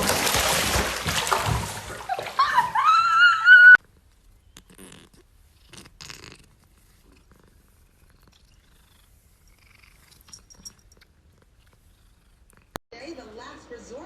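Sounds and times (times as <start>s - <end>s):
cat purring faintly: 3.8s - 12.8s.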